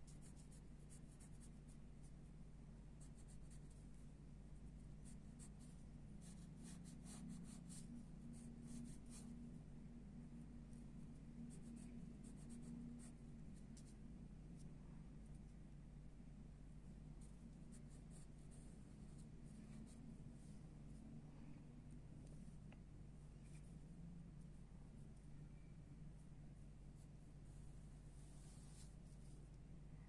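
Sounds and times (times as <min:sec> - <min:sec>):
pencil sketching on paper: 0:00.0 - 0:02.2, 0:03.0 - 0:04.1, 0:04.8 - 0:09.4, 0:11.4 - 0:14.0, 0:17.2 - 0:20.1
steady low hum: 0:00.0 - 0:30.0.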